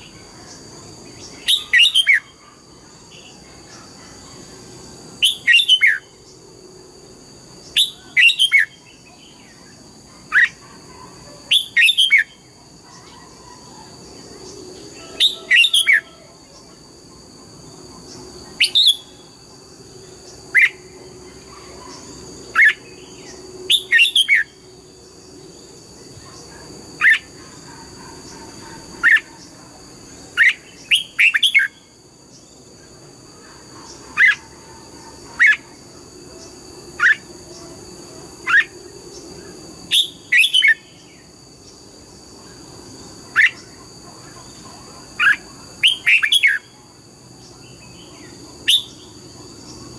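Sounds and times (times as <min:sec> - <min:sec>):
bird chirping: 0:00.0 - 0:06.4, 0:07.6 - 0:16.8, 0:30.3 - 0:32.6, 0:47.4 - 0:49.9.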